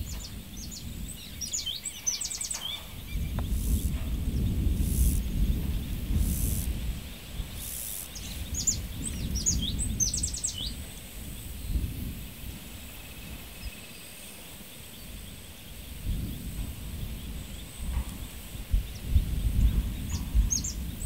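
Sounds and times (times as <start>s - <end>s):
bird chirping: 0.0s - 11.4s
low rumble: 2.9s - 12.2s.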